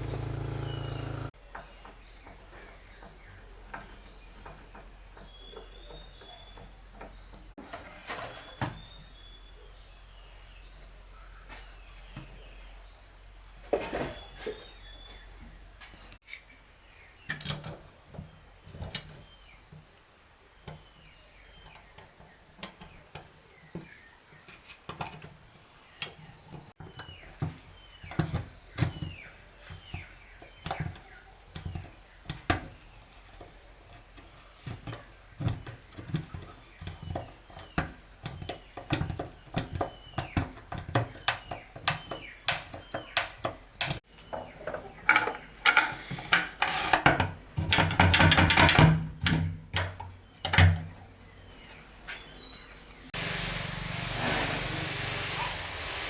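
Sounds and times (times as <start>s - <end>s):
bird chirps: 0.0s - 2.4s
hand tools knocking on wood: 34.6s - 49.4s.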